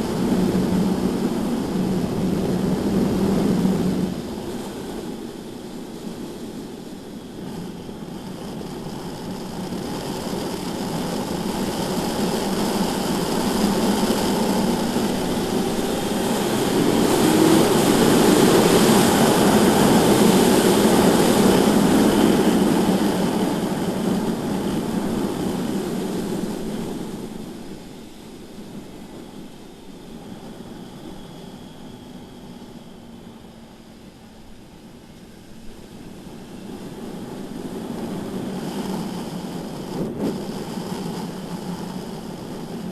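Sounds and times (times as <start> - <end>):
wind rush: 0.0 - 42.9
motorcycle engine: 9.4 - 26.8.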